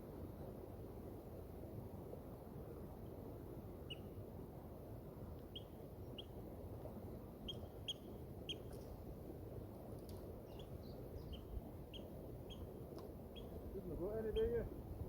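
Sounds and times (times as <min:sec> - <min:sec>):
small bird chirping: 0:05.5 - 0:06.3, 0:07.4 - 0:08.9, 0:10.4 - 0:12.7, 0:13.3 - 0:13.6.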